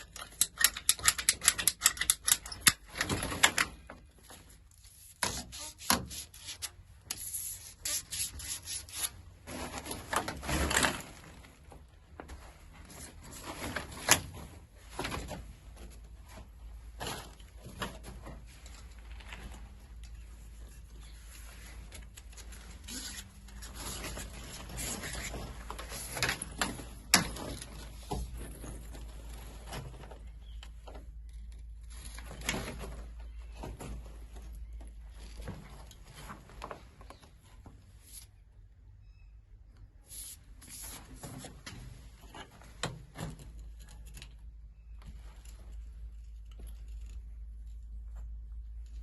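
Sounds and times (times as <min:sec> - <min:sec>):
handling clicks and knocks: 0:00.0 - 0:04.3.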